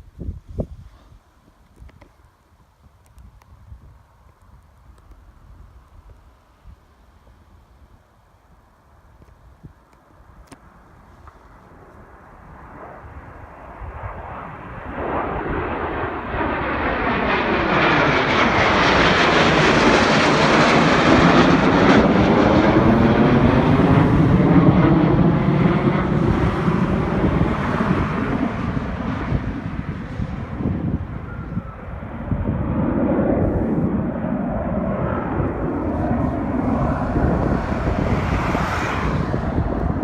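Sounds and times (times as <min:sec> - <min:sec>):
military jet passing by: 0:10.2 - 0:40.0.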